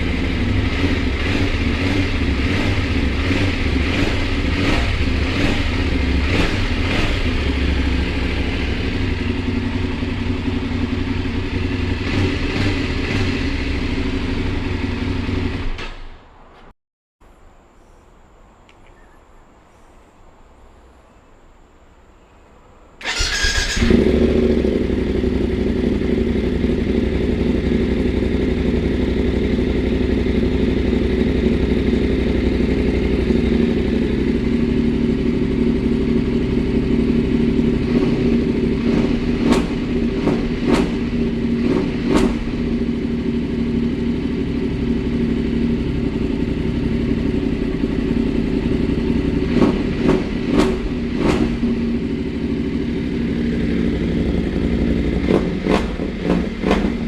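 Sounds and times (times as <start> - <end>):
motorcycle engine idling: 0.0 - 15.6, 23.0 - 57.0.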